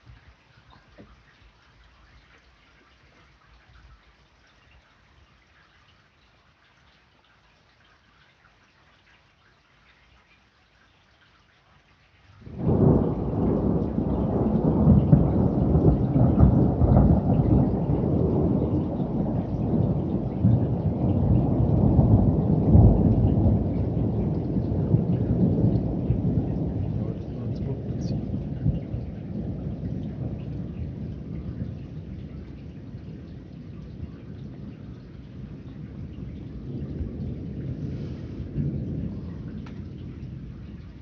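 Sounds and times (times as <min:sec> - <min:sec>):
thunder rolling rumble: 0:12.4 - 0:41.0.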